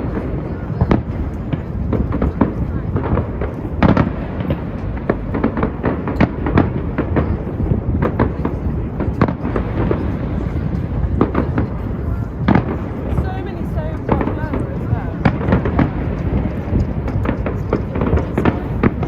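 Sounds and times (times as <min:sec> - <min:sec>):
continuous low rumble: 0:00.0 - 0:19.0
fireworks cracking and banging: 0:00.0 - 0:19.0.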